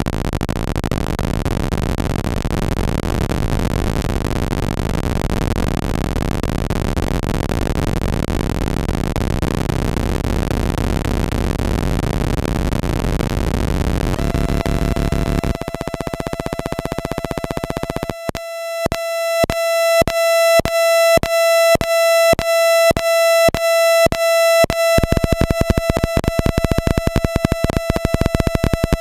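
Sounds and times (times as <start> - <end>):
harsh buzzing synth drone: 7.0 - 29.0
pulsing high square-wave tone: 7.2 - 29.0.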